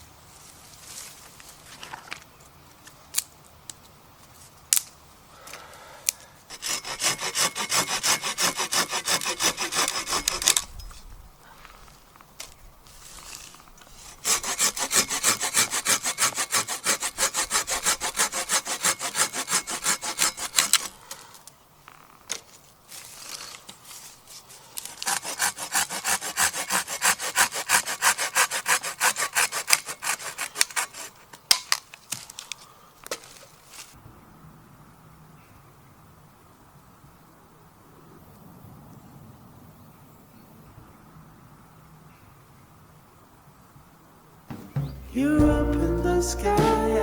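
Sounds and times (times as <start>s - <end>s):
hand saw cutting wood: 6.5s - 10.7s, 13.2s - 21.0s, 24.8s - 31.4s.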